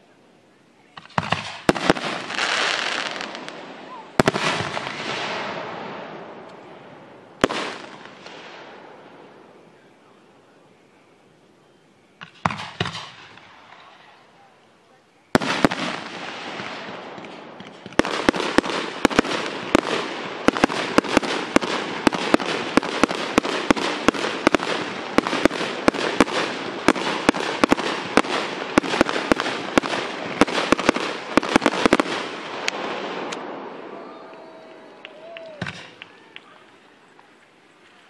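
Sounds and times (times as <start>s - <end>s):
firework bangs: 0.9s - 9.5s, 12.2s - 14.1s, 15.3s - 34.1s, 35.3s - 36.1s
firework crackle: 0.9s - 9.5s, 15.3s - 38.0s.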